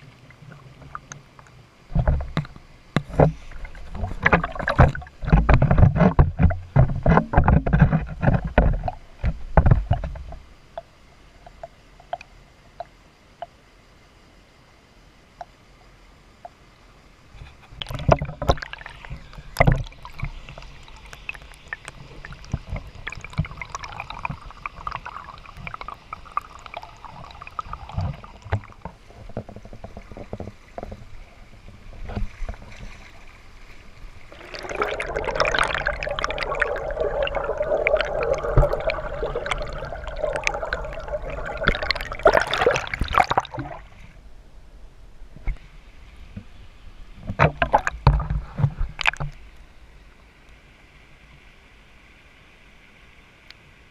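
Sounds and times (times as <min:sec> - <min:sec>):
creek water splashing: 0:03.0 - 0:09.0, 0:17.8 - 0:44.2.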